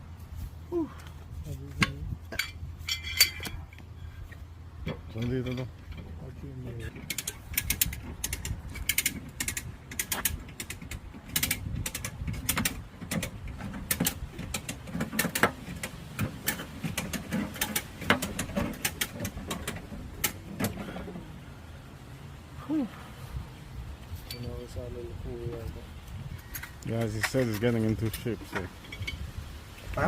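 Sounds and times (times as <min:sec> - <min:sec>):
sharp metallic clicks and knocks: 0:01.7 - 0:06.2, 0:06.8 - 0:21.2.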